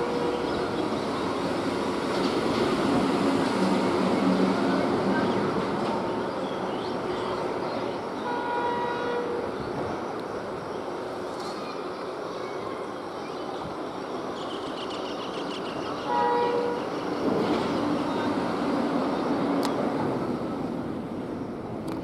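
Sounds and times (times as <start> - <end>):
train wheels clattering on rails: 0.0 - 6.3
train horn blast: 8.2 - 9.5, 16.1 - 16.9.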